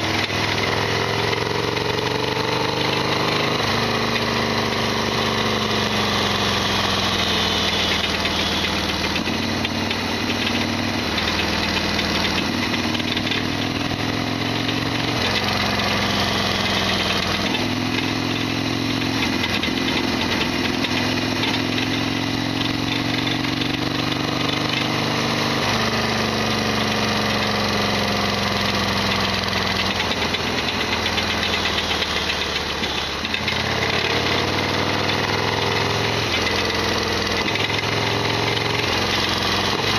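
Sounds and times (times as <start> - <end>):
loud rattly mechanical noise: 0.0 - 39.9
motorcycle engine running: 0.0 - 39.9.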